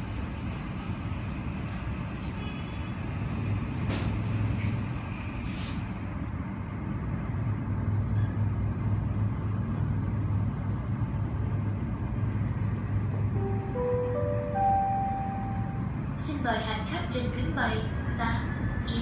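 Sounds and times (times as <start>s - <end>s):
low droning terminal rumble: 10.6s - 19.0s
public-address chime: 13.4s - 16.0s.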